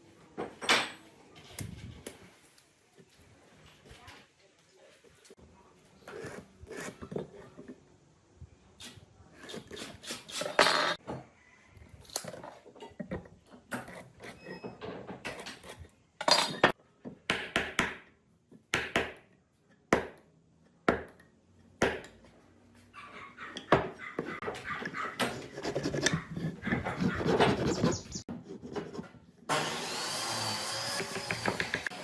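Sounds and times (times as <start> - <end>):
tools knocking and clinking on wood: 31.0 - 31.9.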